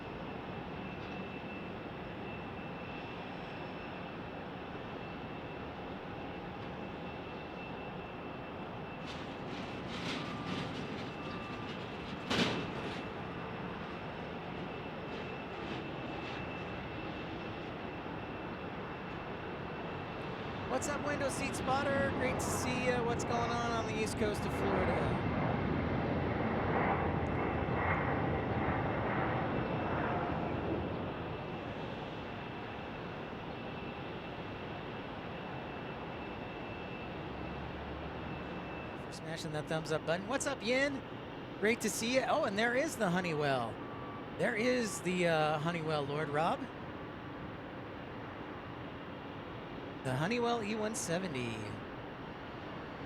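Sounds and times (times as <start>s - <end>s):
distant aircraft: 0.0s - 53.0s
jet engine roar: 0.0s - 53.0s.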